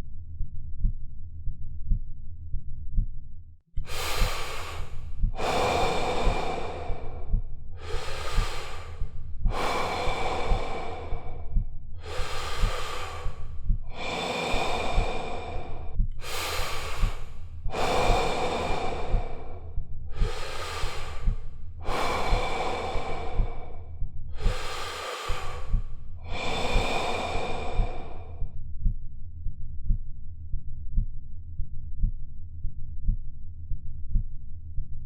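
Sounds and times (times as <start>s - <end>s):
person breathing heavily: 3.8s - 28.6s.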